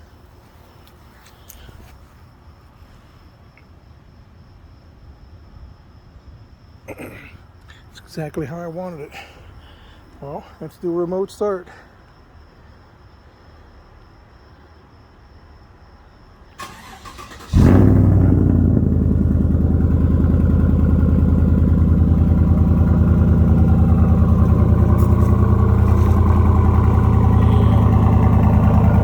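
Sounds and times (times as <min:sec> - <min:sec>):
engine cranking: 0:16.6 - 0:29.0
loud pulsing engine idle: 0:17.5 - 0:29.0.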